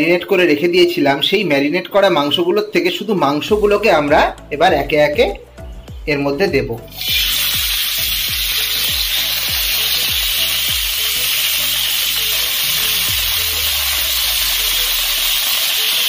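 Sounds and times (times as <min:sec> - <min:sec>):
chicken sizzling in hot oil: 0:06.9 - 0:16.0.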